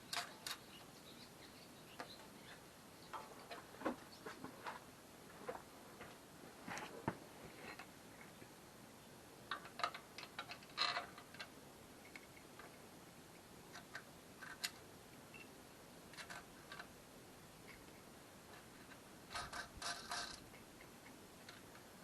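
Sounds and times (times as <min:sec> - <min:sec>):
small hard parts clicking: 0:00.0 - 0:00.8, 0:09.5 - 0:12.8, 0:13.7 - 0:14.8, 0:16.1 - 0:17.0, 0:17.7 - 0:21.9.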